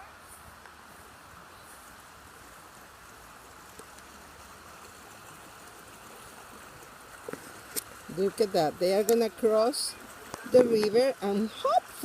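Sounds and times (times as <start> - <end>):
river flowing water: 0.0 - 12.0.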